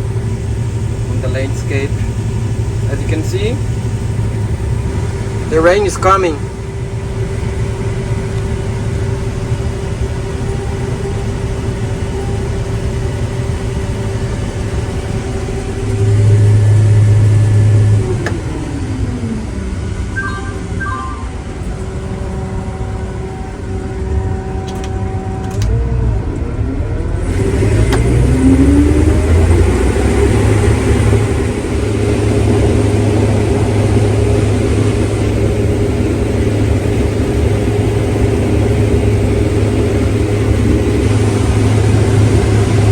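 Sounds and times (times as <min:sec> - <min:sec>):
tractor engine running: 0:00.0 - 0:42.9
short beeps: 0:20.2 - 0:21.8.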